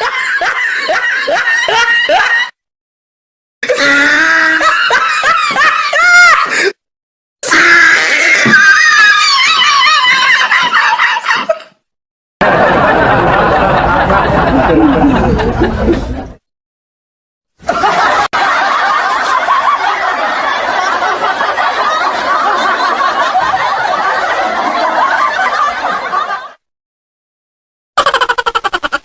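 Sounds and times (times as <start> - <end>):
laughter: 0.0 - 2.6, 4.4 - 6.7, 9.1 - 11.8, 12.4 - 16.4, 17.6 - 26.7, 28.0 - 29.0.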